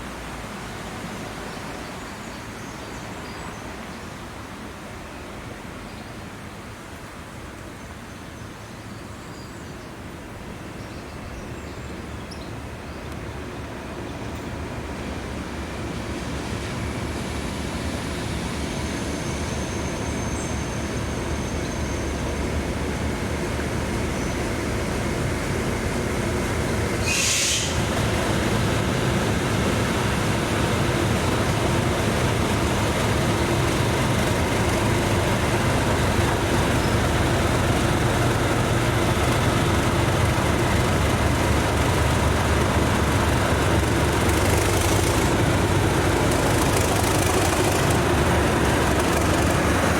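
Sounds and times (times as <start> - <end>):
diesel locomotive engine: 9.9 - 49.9
train rail noise: 13.2 - 49.9
sharp high hiss: 27.0 - 27.9.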